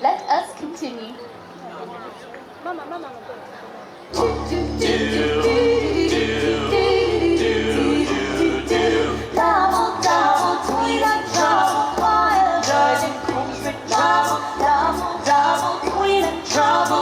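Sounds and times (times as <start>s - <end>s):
small choir singing a cappella: 4.1s - 17.0s.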